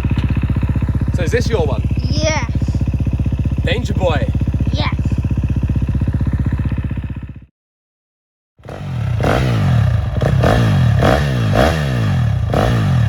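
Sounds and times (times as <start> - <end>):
dirt bike engine idling: 0.0 - 7.5, 8.6 - 13.0
dirt bike engine revving: 8.6 - 13.0.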